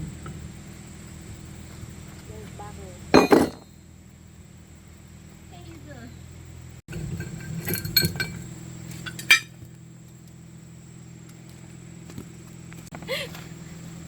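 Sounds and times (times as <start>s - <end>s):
metal tools clinking: 3.2s - 3.7s, 7.2s - 8.4s, 9.0s - 9.5s.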